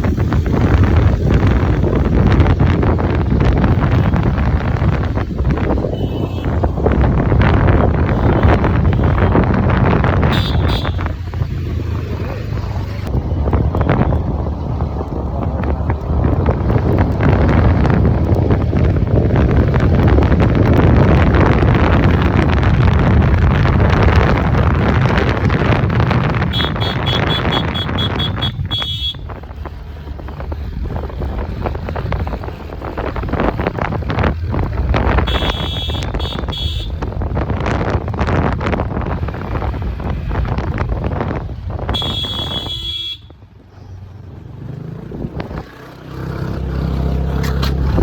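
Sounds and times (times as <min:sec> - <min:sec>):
scooter road rumble: 0:00.0 - 0:48.0
wind buffeting microphone: 0:00.0 - 0:48.0.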